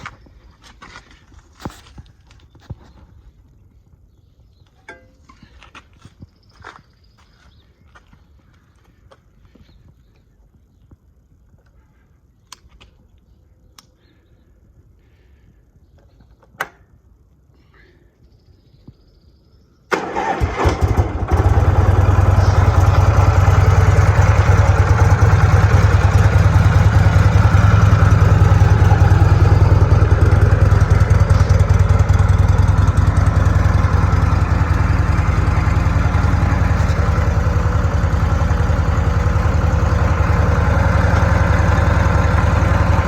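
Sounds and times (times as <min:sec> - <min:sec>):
motorcycle engine starting and idling: 0:19.9 - 0:43.0.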